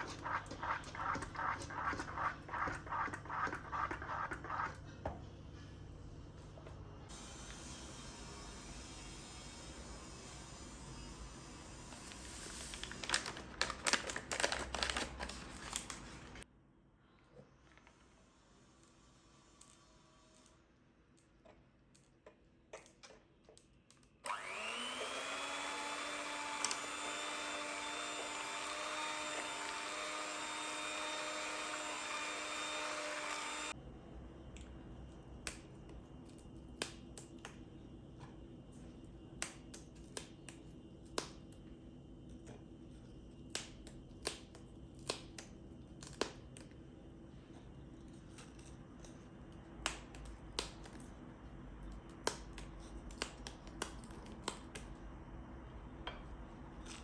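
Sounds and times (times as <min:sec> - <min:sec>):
small electric motor whining: 0:24.2 - 0:33.8.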